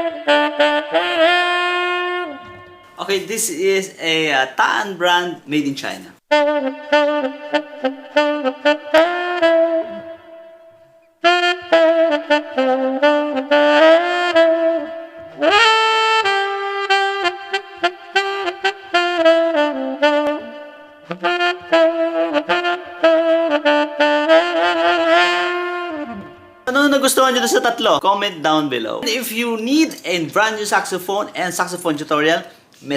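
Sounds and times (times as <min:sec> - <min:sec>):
tenor saxophone melody: 0:00.0 - 0:03.0, 0:06.2 - 0:28.0.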